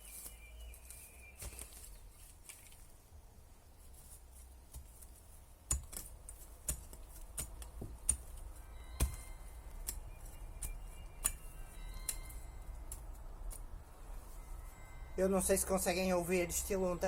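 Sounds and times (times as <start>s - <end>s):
phone alarm melody: 14.2s - 17.0s.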